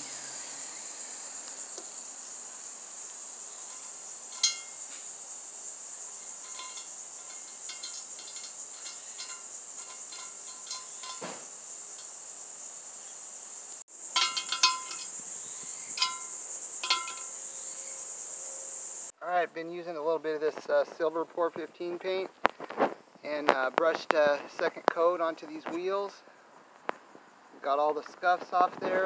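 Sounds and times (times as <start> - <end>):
crickets chirring: 0.0 - 29.0
light metallic clicks and clinks: 3.6 - 4.9, 6.2 - 11.4, 14.1 - 15.2, 15.9 - 17.5.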